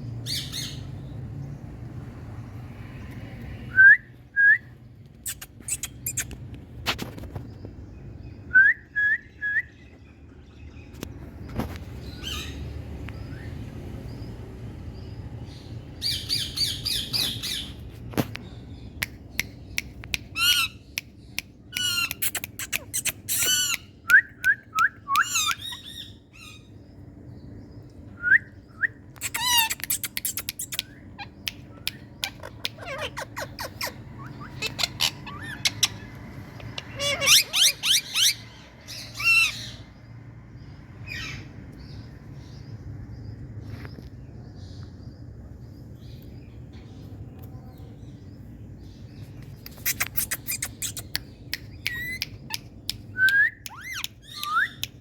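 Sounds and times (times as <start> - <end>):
parrots squawking: 21.8 - 23.9, 25.2 - 26.6, 29.2 - 31.4, 32.2 - 39.8.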